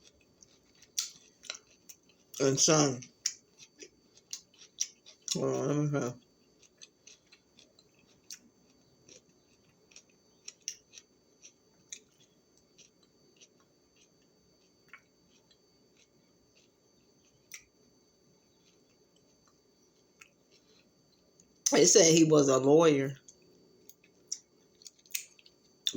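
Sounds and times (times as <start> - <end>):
faint high-pitched tone: 21.7 - 23.2.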